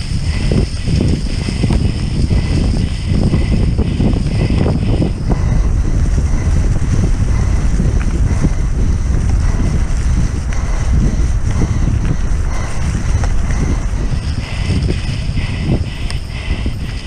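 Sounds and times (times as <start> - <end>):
bike rattling and knocking: 0.0 - 17.0
constant low rumble: 0.0 - 17.0
wind rushing over microphone: 0.0 - 17.0.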